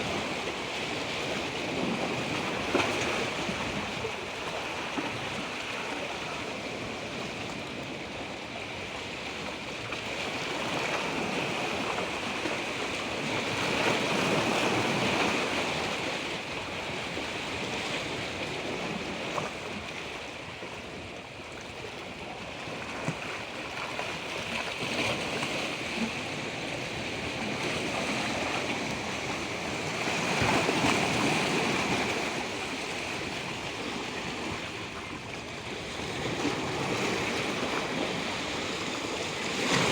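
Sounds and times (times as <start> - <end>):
water rushing: 22.8 - 39.9.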